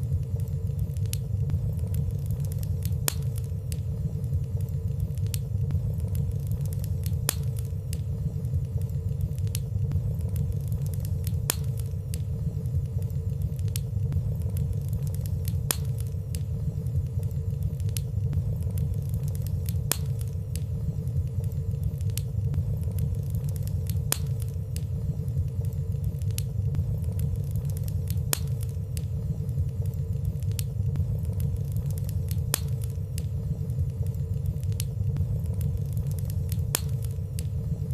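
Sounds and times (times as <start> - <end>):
faint steady hum: 0.0 - 37.9
fire crackling in fireplace: 0.0 - 37.9.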